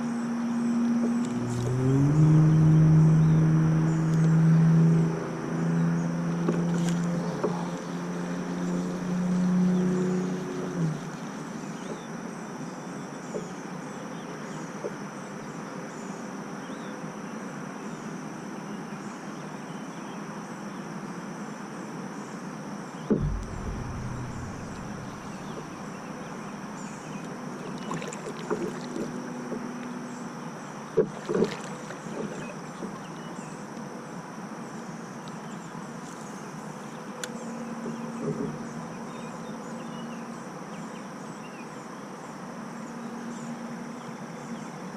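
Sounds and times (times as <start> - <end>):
thump: 23.1 - 26.1.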